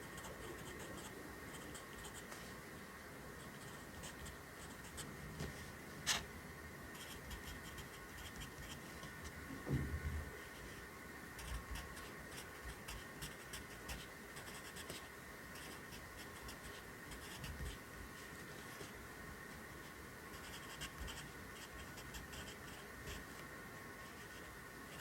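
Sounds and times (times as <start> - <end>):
pencil writing on paper: 7.0 - 9.2, 11.4 - 15.0, 15.6 - 17.8, 20.4 - 23.3.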